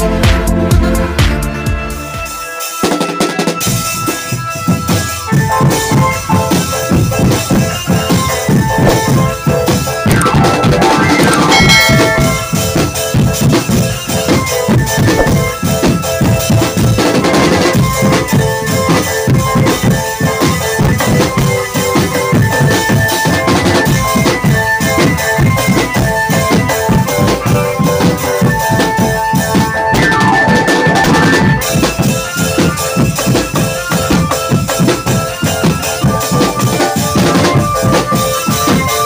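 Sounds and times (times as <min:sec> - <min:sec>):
snare and bass drum beats: 0:04.9 - 0:39.0
sustained melody: 0:08.6 - 0:13.2.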